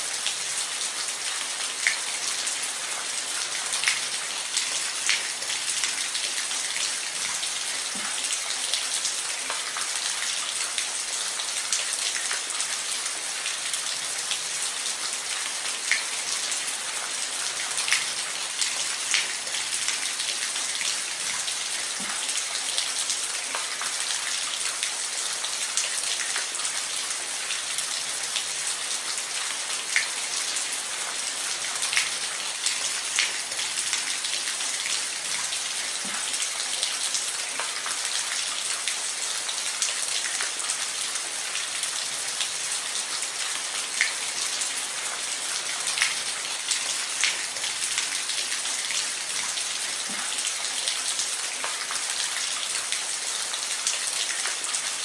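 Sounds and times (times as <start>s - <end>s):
rain on a roof: 0.0s - 55.0s.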